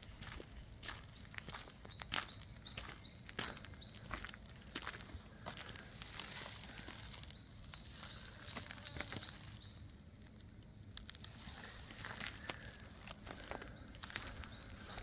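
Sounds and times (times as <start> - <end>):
light footsteps: 11.0 - 15.0.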